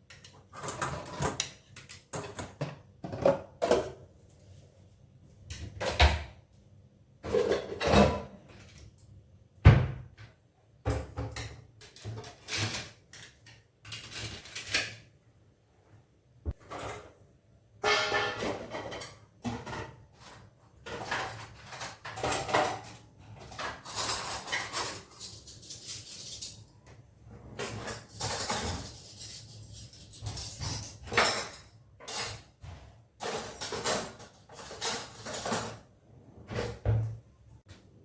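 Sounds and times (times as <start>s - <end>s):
dishes and cutlery clattering: 0.0s - 4.0s, 7.2s - 8.5s, 17.8s - 26.6s, 27.5s - 35.9s.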